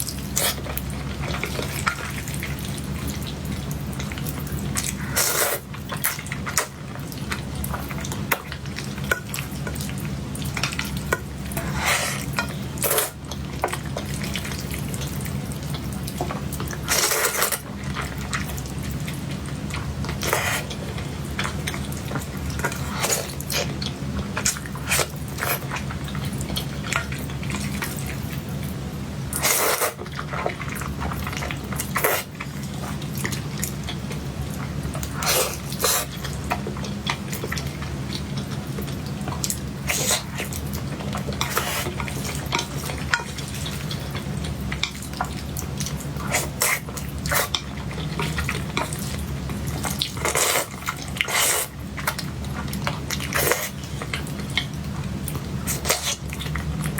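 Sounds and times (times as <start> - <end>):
wet chewing: 29.3 - 56.9.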